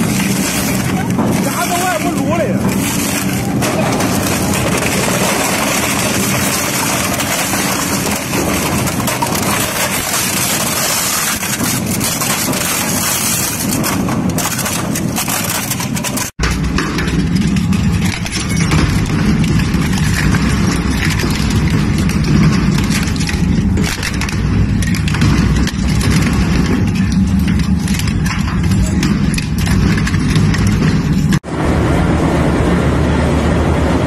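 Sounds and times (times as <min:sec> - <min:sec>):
shredder grinding scrap: 0:00.0 - 0:16.4
low machine rumble: 0:00.0 - 0:34.0.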